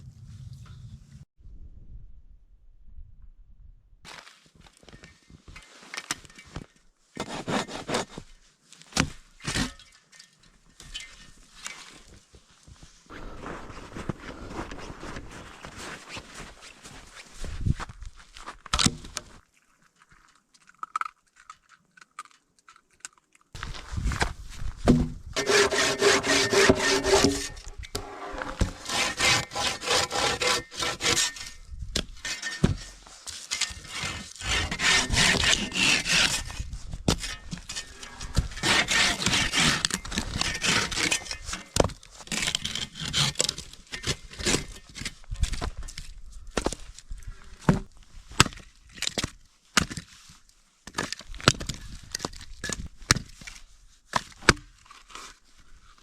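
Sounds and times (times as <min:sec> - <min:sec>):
hand saw cutting wood: 0:07.2 - 0:08.2, 0:25.4 - 0:31.6, 0:32.2 - 0:44.8.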